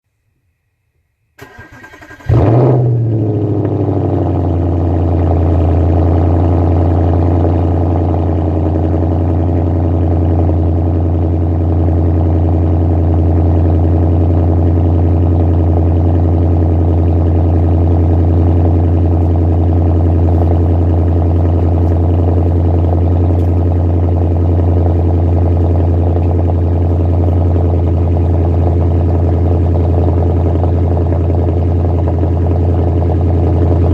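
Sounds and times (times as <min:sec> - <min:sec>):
starter motor cranking: 0:01.4 - 0:02.4
car engine revving and idling: 0:01.4 - 0:33.9.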